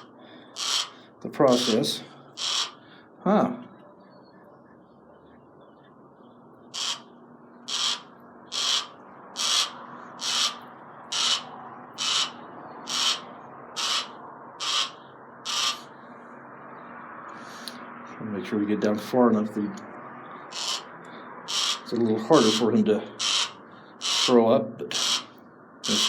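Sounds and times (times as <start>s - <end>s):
owl hissing: 0.0s - 2.9s, 6.7s - 7.1s, 7.7s - 15.9s, 20.5s - 26.0s.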